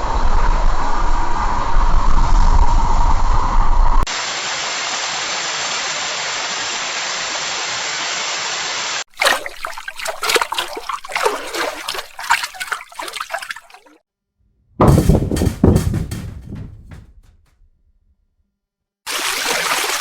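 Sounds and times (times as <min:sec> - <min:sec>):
water splashing and trickling: 0:09.1 - 0:14.0, 0:14.8 - 0:17.3, 0:19.1 - 0:20.0.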